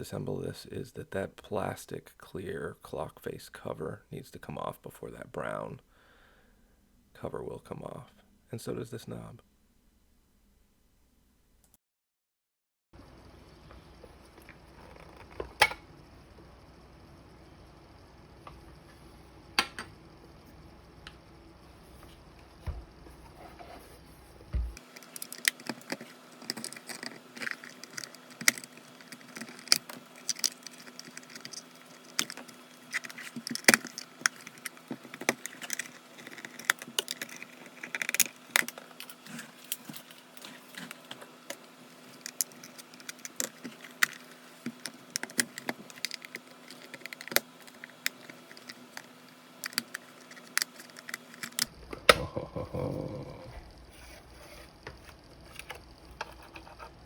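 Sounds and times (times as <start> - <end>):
faint steady hum: 0.0 - 11.7, 13.0 - 57.0
plastic and metal parts clicking: 24.9 - 40.2, 42.2 - 51.7.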